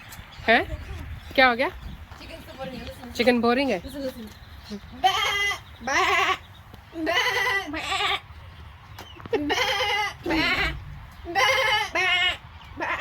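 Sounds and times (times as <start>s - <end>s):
goats bleating: 5.0s - 6.4s, 7.0s - 8.3s, 9.4s - 13.0s.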